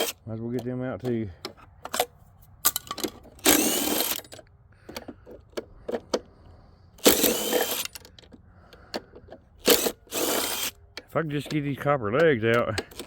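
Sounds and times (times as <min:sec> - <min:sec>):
metal parts clicking: 0:00.0 - 0:06.2, 0:07.0 - 0:13.0
power drill spinning: 0:03.4 - 0:05.2, 0:07.0 - 0:08.2, 0:09.6 - 0:10.8.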